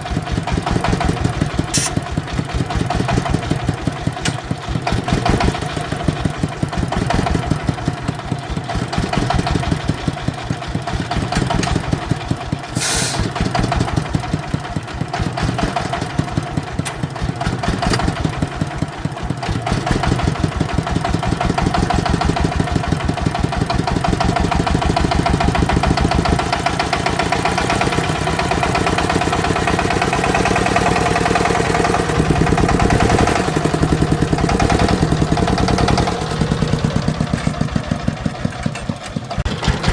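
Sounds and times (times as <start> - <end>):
farm vehicle engine chugging: 0.0 - 39.9
brief hiss: 1.8 - 2.0, 12.8 - 13.3.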